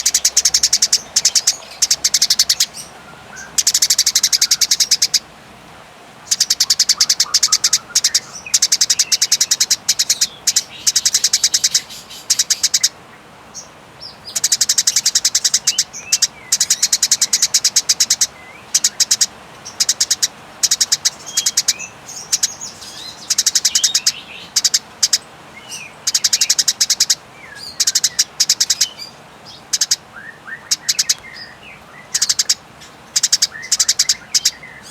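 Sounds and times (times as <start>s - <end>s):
soft bird chirps: 0.0s - 5.2s, 6.2s - 34.9s
sparrow rattling chatter: 0.0s - 5.2s, 6.3s - 12.9s, 14.3s - 30.0s, 30.7s - 31.3s, 32.1s - 34.9s.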